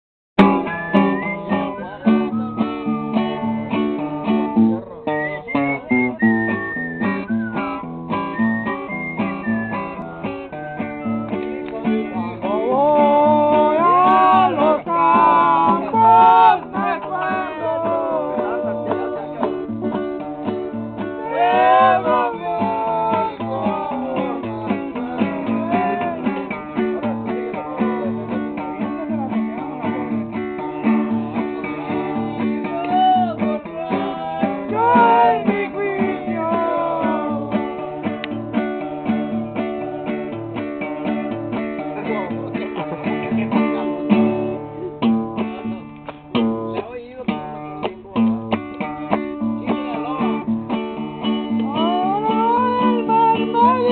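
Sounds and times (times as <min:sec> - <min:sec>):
acoustic guitar strumming: 0:00.4 - 0:53.9
person singing: 0:11.9 - 0:29.0, 0:31.4 - 0:38.2, 0:51.5 - 0:53.9.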